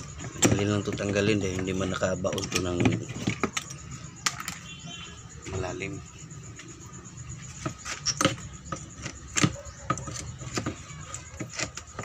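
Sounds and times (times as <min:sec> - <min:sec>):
claw hammer prying wood: 0:00.0 - 0:04.6, 0:07.6 - 0:12.0
wooden knocks: 0:00.0 - 0:04.6, 0:07.6 - 0:12.0.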